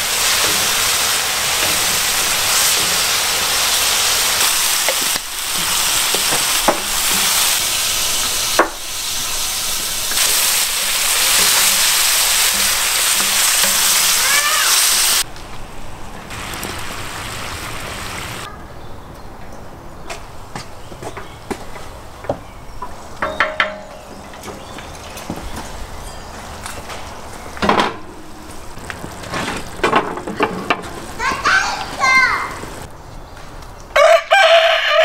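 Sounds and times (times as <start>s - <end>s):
meat and tomatoes sizzling in pan: 0.0s - 15.3s, 16.3s - 18.5s.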